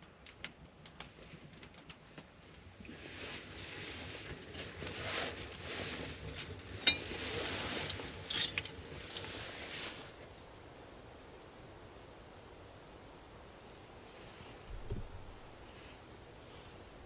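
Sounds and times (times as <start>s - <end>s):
rustling of camp gear: 7.8s - 17.0s.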